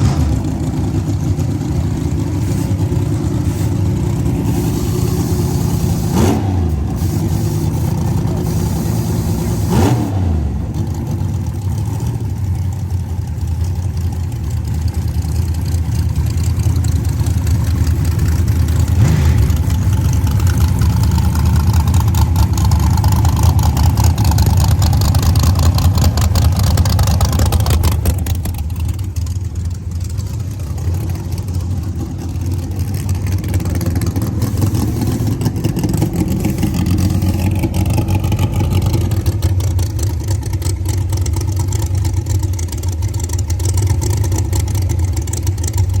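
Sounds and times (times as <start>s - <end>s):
race car engine idling: 0.0s - 46.0s.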